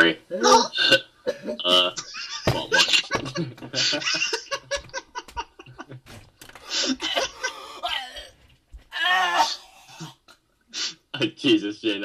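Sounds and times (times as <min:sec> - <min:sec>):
person laughing hard: 0:01.3 - 0:06.1, 0:06.7 - 0:08.2.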